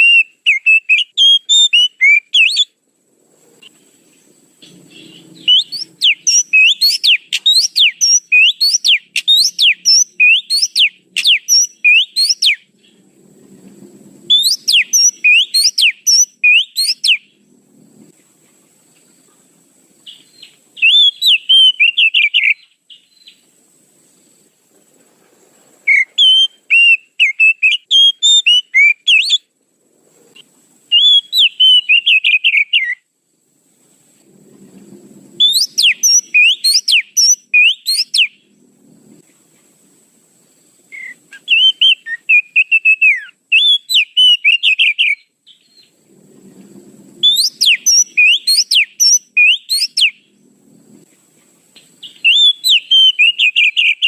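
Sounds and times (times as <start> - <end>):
bird whistled chirps: 0.0 - 2.8, 4.6 - 12.7, 14.3 - 17.4, 20.0 - 23.4, 25.8 - 29.5, 30.9 - 33.0, 35.4 - 38.4, 40.9 - 46.0, 47.2 - 50.3, 52.0 - 54.0.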